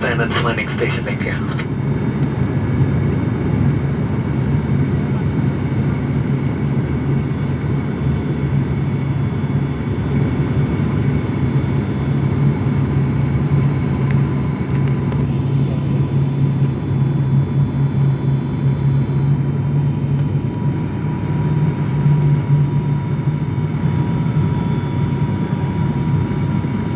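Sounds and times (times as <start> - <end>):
airliner cabin engine drone: 0.0 - 26.9
low hum: 13.0 - 26.9.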